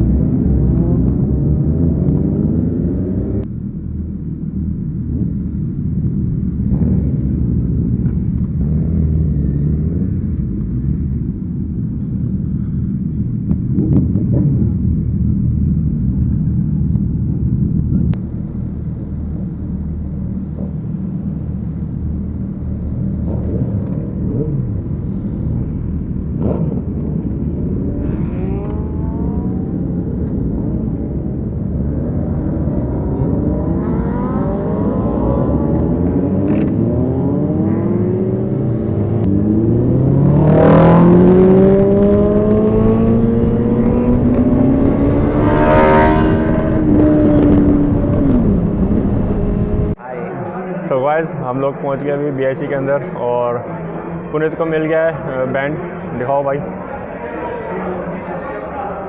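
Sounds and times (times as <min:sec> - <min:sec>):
motorcycle engine running: 0:03.5 - 0:33.6, 0:34.2 - 0:50.0.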